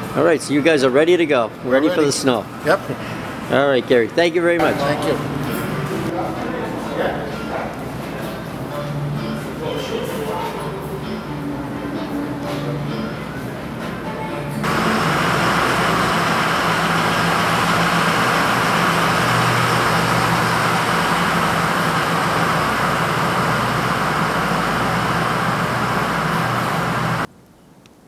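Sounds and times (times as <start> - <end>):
truck diesel engine running: 14.6 - 27.3.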